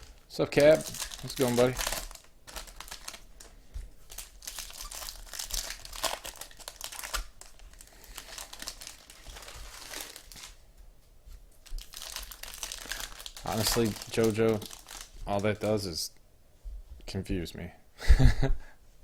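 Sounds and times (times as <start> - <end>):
card wrappers crinkling: 0.0 - 10.6, 11.6 - 15.9.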